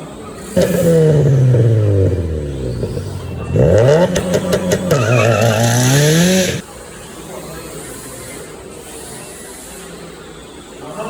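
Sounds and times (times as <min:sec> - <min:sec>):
car engine revving: 0:00.4 - 0:06.6
tyre skid clicks: 0:00.6 - 0:06.6.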